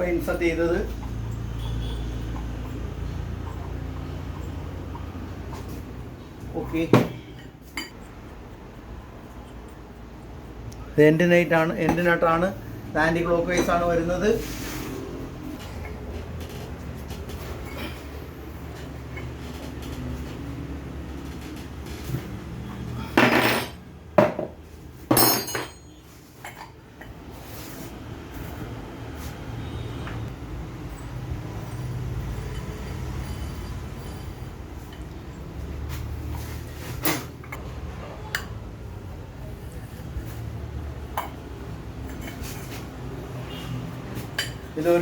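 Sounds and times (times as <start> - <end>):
metal tools clanking on metal parts: 23.0 - 23.8, 25.0 - 26.8.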